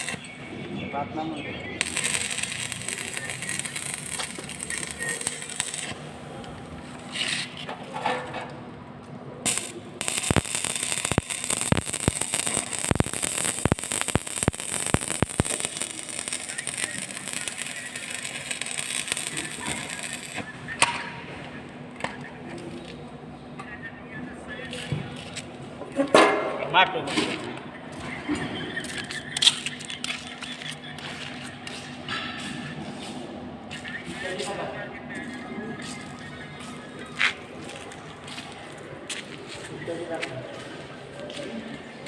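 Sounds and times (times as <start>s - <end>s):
arc welding crackling: 0.0s - 0.7s, 1.7s - 7.8s, 9.4s - 21.1s
loud crack: 9.5s - 21.0s
sharp clicks and pops: 9.5s - 21.0s.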